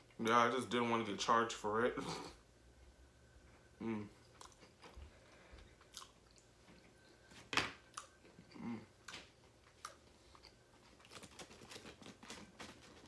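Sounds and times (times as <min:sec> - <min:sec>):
chewing and crunching food: 0:04.2 - 0:07.2, 0:07.9 - 0:13.0.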